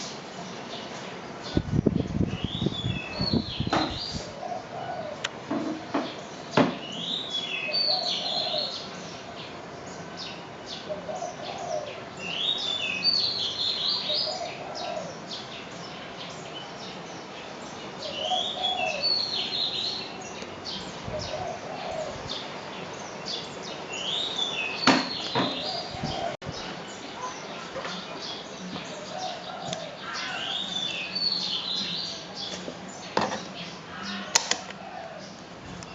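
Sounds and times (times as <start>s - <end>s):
bird chirping: 0.0s - 5.2s, 5.8s - 35.9s
bird cooing: 3.9s - 5.3s, 7.0s - 9.0s, 10.8s - 12.6s, 13.9s - 15.3s, 18.0s - 19.8s, 20.8s - 22.4s, 25.3s - 26.4s, 28.9s - 32.0s, 33.9s - 35.4s.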